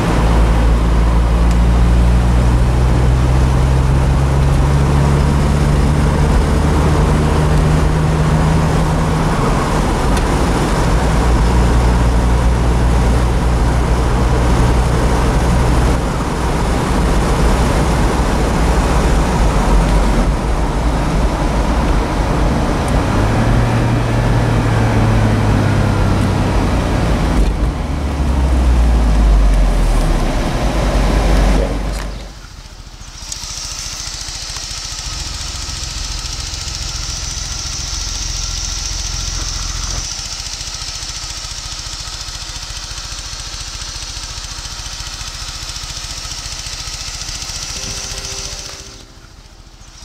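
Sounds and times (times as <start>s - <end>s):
car engine running: 0.0s - 50.0s
road and wind noise: 0.0s - 50.0s.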